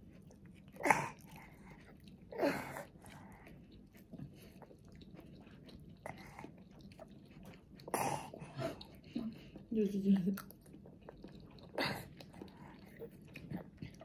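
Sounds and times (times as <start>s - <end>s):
toddler chewing: 0.0s - 9.7s, 10.3s - 14.0s.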